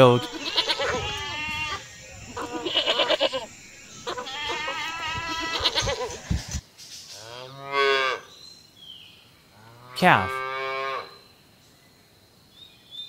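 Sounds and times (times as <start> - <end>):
goat bleating: 0.0 - 6.3.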